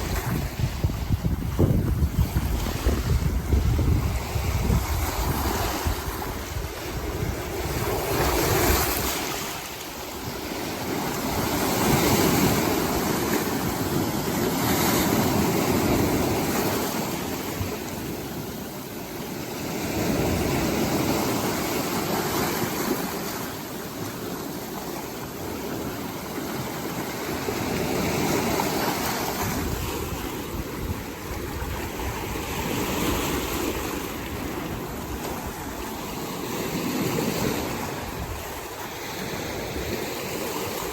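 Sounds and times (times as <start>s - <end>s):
storm waves surging and breaking: 0.0s - 40.9s.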